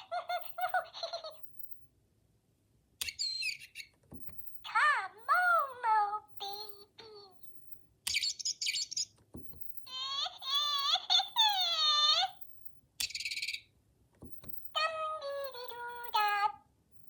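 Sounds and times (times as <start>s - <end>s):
toy electronic babbling voice: 0.0s - 1.5s, 4.7s - 7.5s, 9.8s - 12.4s, 14.7s - 16.6s
high rapid chirping: 3.0s - 4.6s, 7.4s - 9.9s.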